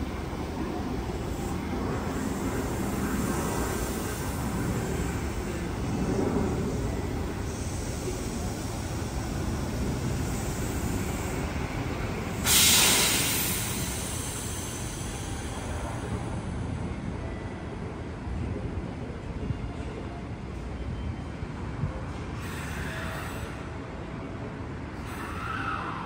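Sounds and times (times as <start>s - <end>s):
electric train rumbling: 0.0s - 26.0s
loud hiss of released air: 12.3s - 16.0s.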